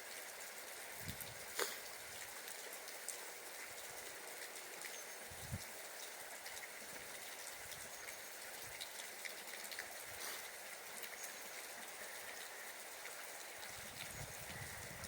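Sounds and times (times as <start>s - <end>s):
steady hiss: 0.7s - 7.1s.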